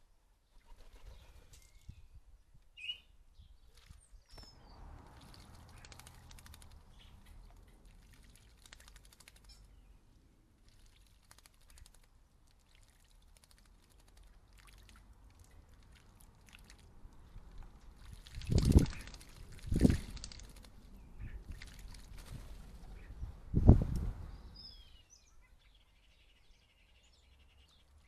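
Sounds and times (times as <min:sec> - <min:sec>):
birds splashing in a bird bath: 0:03.6 - 0:23.2.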